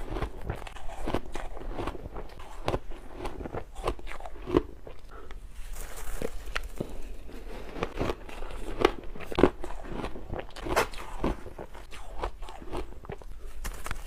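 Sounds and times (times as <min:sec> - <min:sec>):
ice being chewed: 0:00.0 - 0:14.0.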